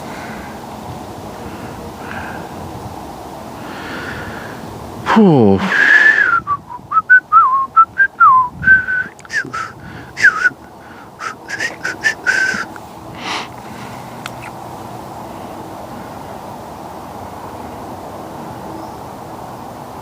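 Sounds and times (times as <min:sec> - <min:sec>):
man whistling a tune: 0:05.8 - 0:10.6, 0:11.2 - 0:12.7.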